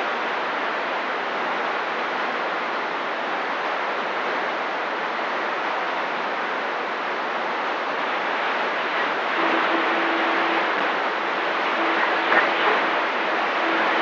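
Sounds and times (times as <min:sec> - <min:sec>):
radio static hiss: 0:07.2 - 0:14.0.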